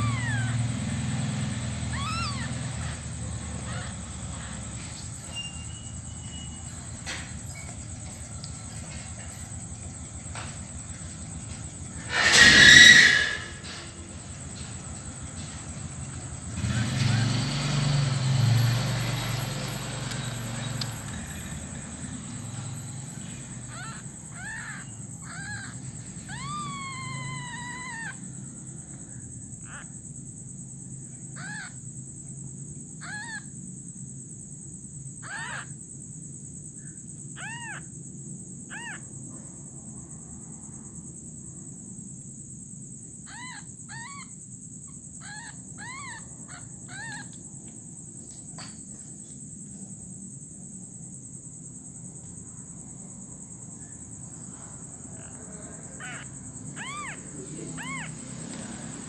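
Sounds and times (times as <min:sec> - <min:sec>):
young animal crying: 0:00.0 - 0:09.7, 0:10.3 - 0:30.1, 0:31.0 - 0:32.0, 0:32.8 - 0:33.6, 0:35.2 - 0:35.9, 0:36.8 - 0:38.0, 0:38.6 - 0:39.6, 0:43.2 - 0:47.8, 0:54.2 - 0:59.0
high insect buzz: 0:00.0 - 0:33.5, 0:41.8 - 0:50.7.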